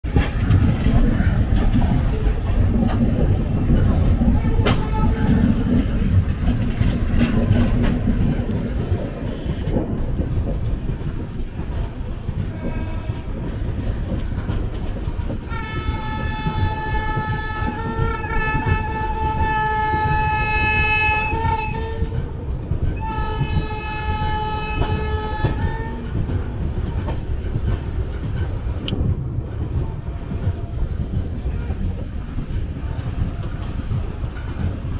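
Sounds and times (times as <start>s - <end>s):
train rumbling on rails: 0.0s - 34.9s
locomotive horn blasts: 15.5s - 22.2s, 23.0s - 26.0s.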